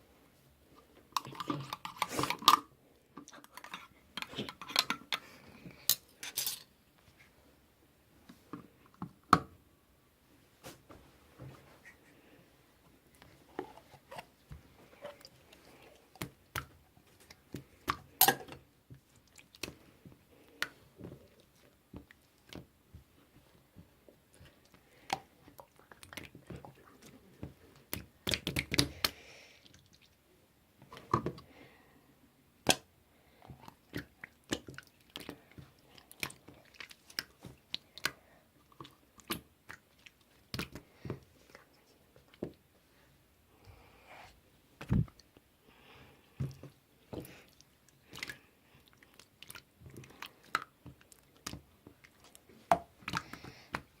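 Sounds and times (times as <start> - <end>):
hands squishing slime: 24.3 - 30.1, 33.5 - 42.5.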